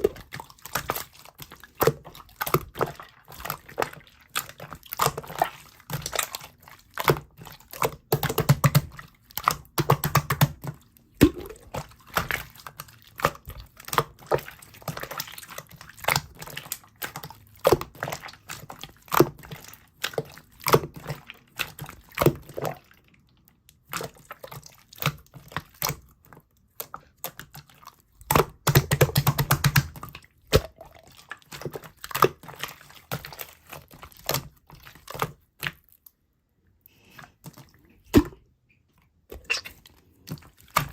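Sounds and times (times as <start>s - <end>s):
slime squeezed by hand: 37.1s - 40.9s.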